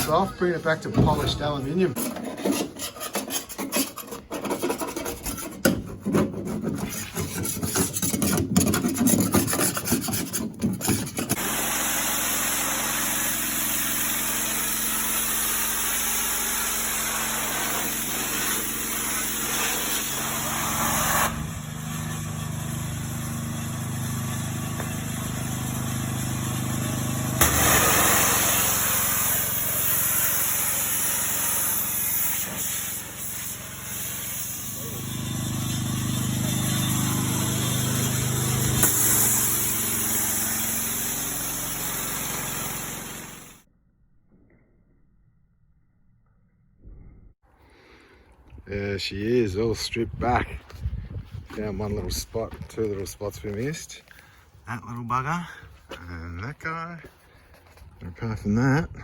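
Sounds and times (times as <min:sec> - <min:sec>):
continuous sanding noise: 0:00.0 - 0:11.4
scraping paint off metal: 0:00.0 - 0:11.4.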